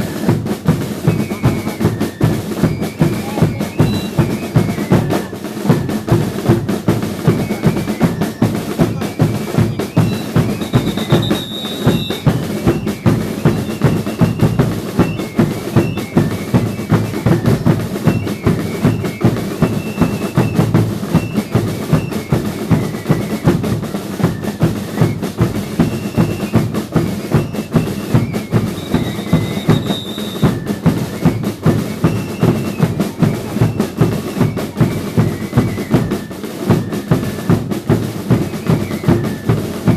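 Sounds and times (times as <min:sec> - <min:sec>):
drums beating rhythm: 0:00.0 - 0:39.9.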